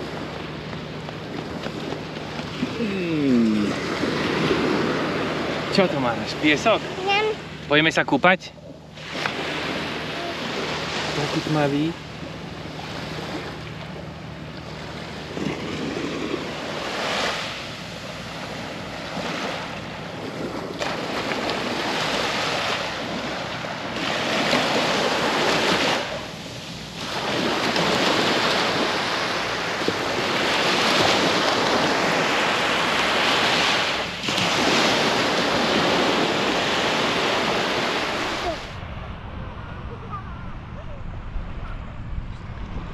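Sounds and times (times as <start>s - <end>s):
surf washing onto beach: 0.0s - 42.9s
wind buffeting microphone: 33.5s - 42.9s.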